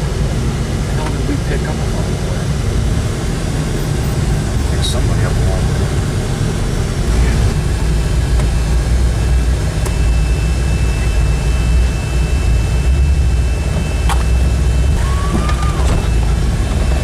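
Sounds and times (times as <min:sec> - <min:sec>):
vehicle rumble: 0:00.0 - 0:17.0
faint high whine: 0:06.8 - 0:17.0.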